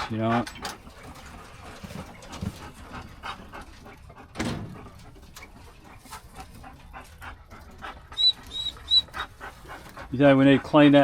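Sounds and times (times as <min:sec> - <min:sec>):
rustles and small knocks: 0:00.4 - 0:07.2.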